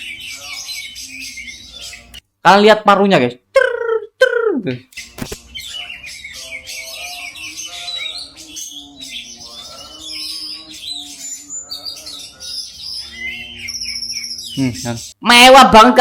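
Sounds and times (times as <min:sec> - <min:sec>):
bird singing chirps and whistles: 0:00.0 - 0:02.2, 0:04.9 - 0:15.2.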